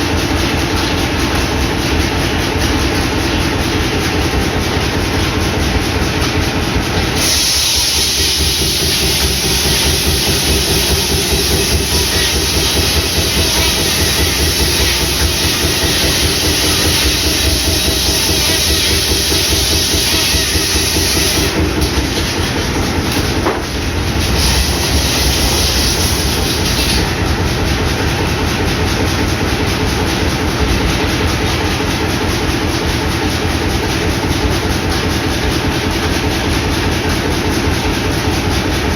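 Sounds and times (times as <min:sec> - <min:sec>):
engine chugging: 0:00.0 - 0:38.9
circular saw cutting log: 0:07.2 - 0:27.2.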